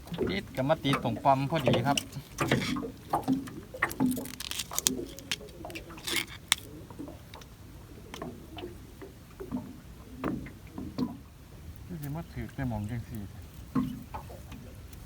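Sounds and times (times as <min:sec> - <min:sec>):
water splashing and dripping: 0:00.0 - 0:11.2
light clicks and knocks: 0:00.1 - 0:06.7
wet net rustling: 0:01.8 - 0:06.8.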